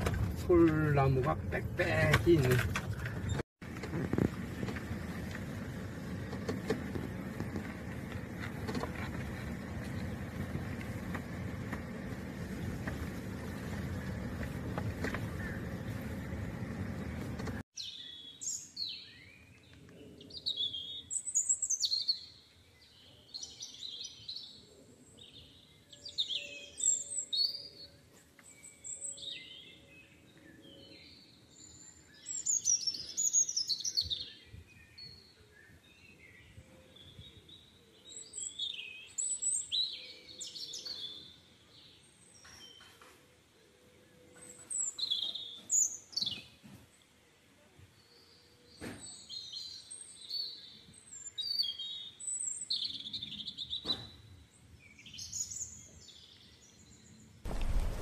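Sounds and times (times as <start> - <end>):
car running: 0.0 - 17.6, 57.5 - 58.0
birds singing and chirping: 5.1 - 46.6, 47.9 - 58.0.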